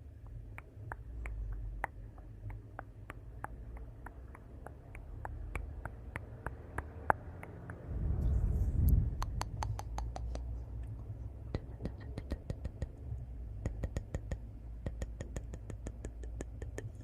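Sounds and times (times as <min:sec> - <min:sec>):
low rumble: 0:07.7 - 0:09.6.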